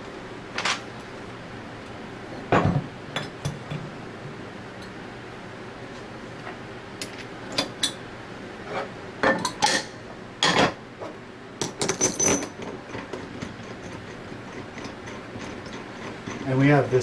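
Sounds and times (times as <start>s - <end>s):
metal parts clinking and knocking: 11.6s - 13.1s.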